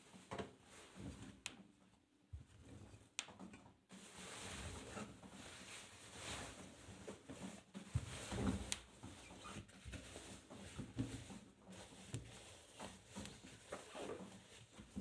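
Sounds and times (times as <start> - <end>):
laundry tumbling in washing machine: 3.4 - 15.0.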